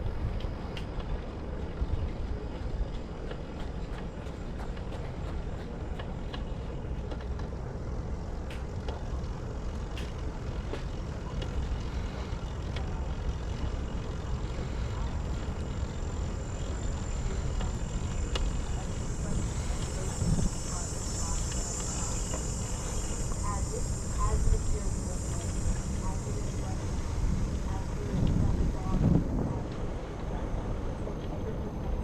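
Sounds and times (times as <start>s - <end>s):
bicycle tyre noise: 0.0s - 32.0s
wind rumbling on microphone: 0.0s - 32.0s
high insect buzz: 18.2s - 28.0s.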